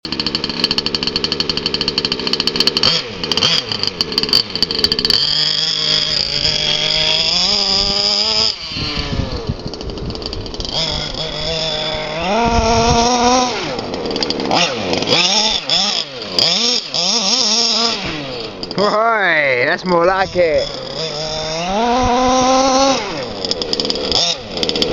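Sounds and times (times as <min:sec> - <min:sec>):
model car engine revving: 0:00.0 - 0:24.9.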